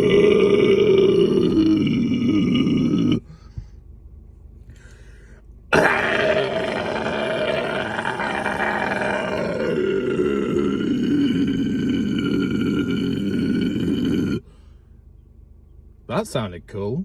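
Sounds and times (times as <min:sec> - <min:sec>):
guttural harsh vocal roar: 0:00.0 - 0:03.3, 0:05.7 - 0:14.5.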